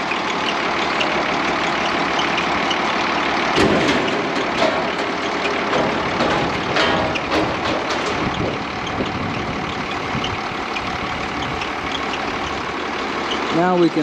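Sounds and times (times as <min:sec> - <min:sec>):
vehicle engine idling: 0:00.0 - 0:14.0
clunk: 0:03.5 - 0:09.2.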